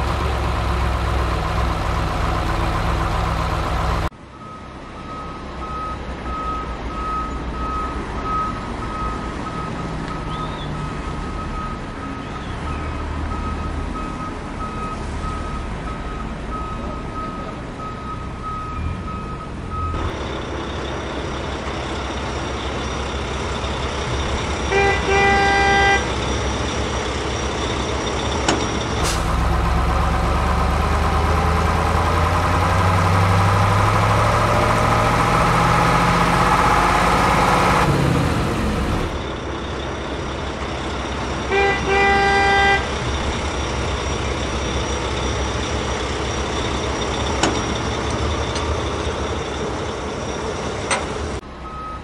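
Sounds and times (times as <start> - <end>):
diesel truck engine rumble: 0.0 - 52.0
reversing beep: 4.3 - 20.1, 51.6 - 52.0
truck horn toots: 24.7 - 26.2, 41.5 - 43.0.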